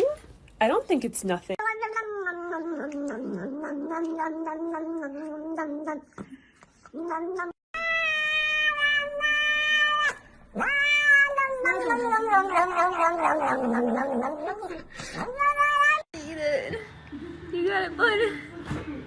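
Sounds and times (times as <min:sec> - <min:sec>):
cat meowing and yowling: 0:07.0 - 0:16.1.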